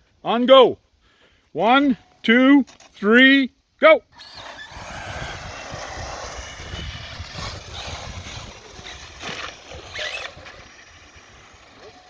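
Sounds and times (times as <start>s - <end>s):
high electric motor whine: 4.2s - 12.0s.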